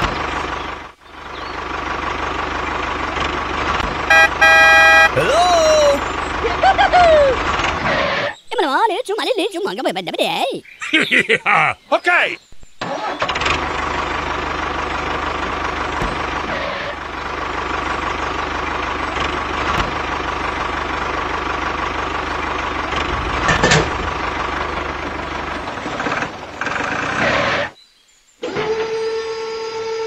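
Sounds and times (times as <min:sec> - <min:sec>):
tractor engine running: 0:00.0 - 0:08.4, 0:12.8 - 0:27.8.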